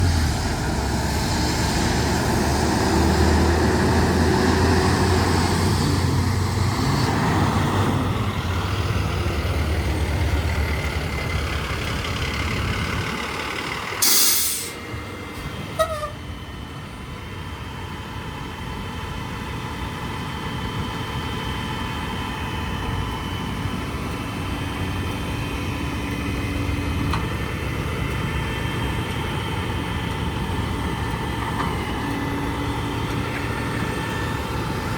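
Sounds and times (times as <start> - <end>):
diesel truck engine running: 0.0 - 34.9
air brakes hissing: 14.0 - 14.8.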